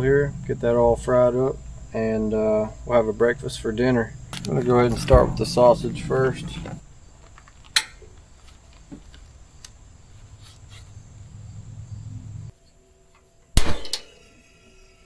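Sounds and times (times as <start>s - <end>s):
low steady rumble: 0.0s - 7.2s, 9.8s - 12.5s.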